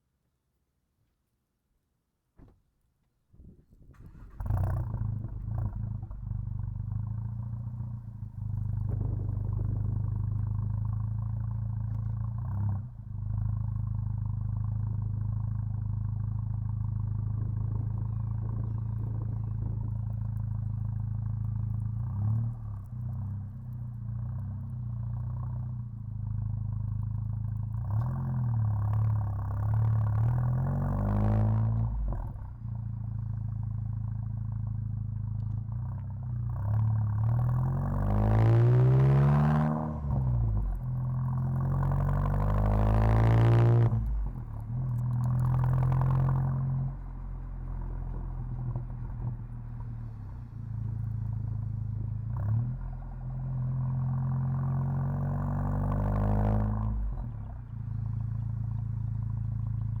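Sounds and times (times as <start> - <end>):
car engine accelerating: 3.4 - 60.0.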